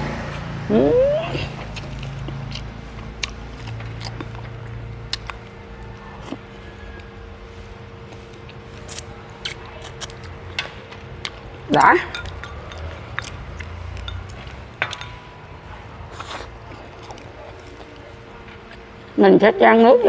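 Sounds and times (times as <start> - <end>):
faint steady hum: 0.0 - 20.0
person chewing: 1.4 - 7.2, 8.0 - 11.5, 12.2 - 15.2, 16.0 - 19.2
wet mouth clicks: 1.7 - 5.4.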